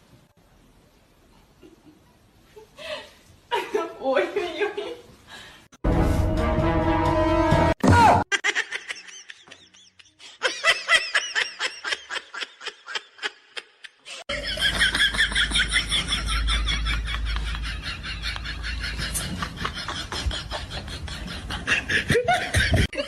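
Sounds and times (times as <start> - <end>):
higher-pitched laugh: 8.3 - 23.0.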